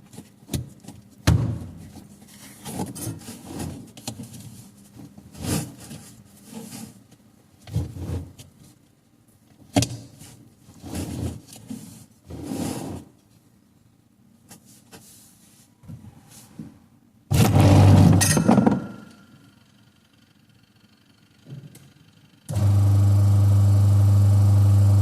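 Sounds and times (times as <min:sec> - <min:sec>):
rubbing and scraping: 0:02.0 - 0:07.0.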